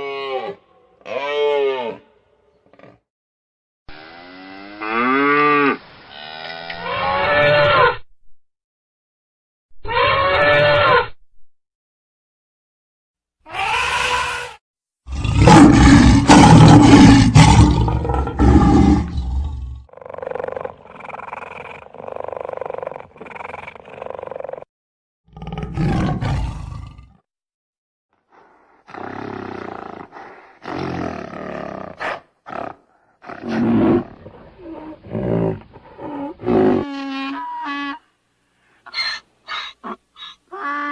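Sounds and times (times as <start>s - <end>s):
animal calls and cries: 13.4s - 14.6s, 31.5s - 38.1s, 38.8s - 40.9s
animal roar: 13.5s - 24.7s, 25.3s - 27.2s, 28.9s - 37.0s.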